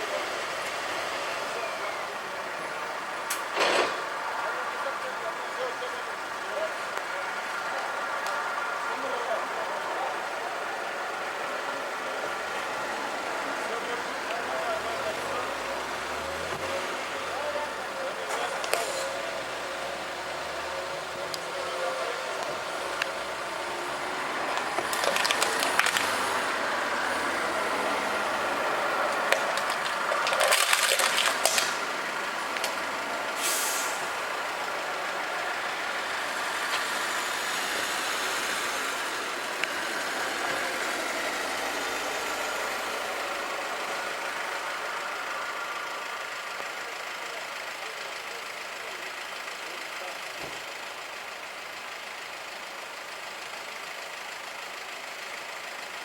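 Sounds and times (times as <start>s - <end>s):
street traffic: 0.0s - 56.0s
short hissing bursts: 33.4s - 34.1s.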